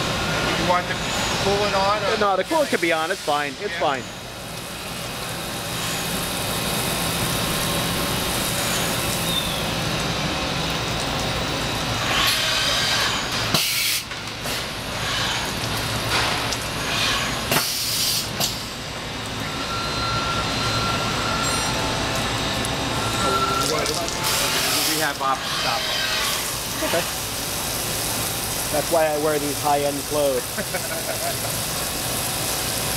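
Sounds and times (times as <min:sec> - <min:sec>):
coolant spray noise: 0:00.0 - 0:32.9
loud hissing bursts: 0:00.6 - 0:09.9, 0:11.7 - 0:18.8, 0:24.2 - 0:32.9.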